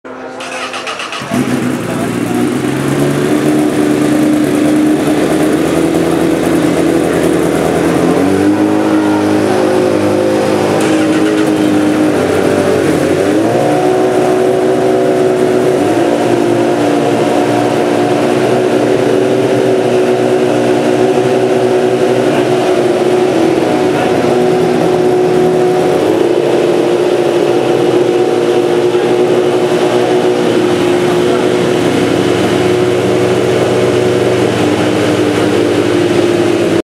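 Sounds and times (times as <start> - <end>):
motorcycle engine revving: 0.1 - 36.8.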